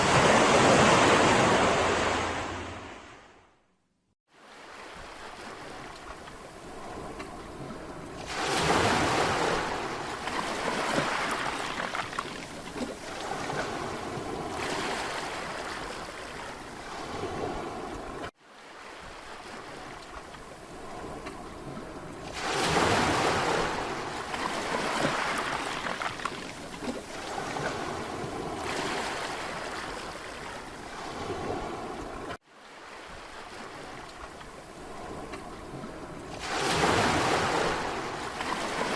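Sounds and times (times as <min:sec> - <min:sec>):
sea waves washing onto shore: 0:00.0 - 0:03.2, 0:04.3 - 0:38.9.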